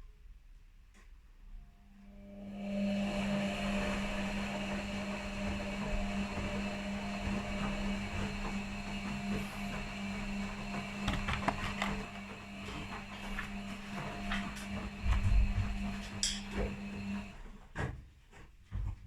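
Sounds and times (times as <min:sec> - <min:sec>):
washing machines humming and whirring: 0:01.5 - 0:19.0
washing machine rattles: 0:04.4 - 0:17.4.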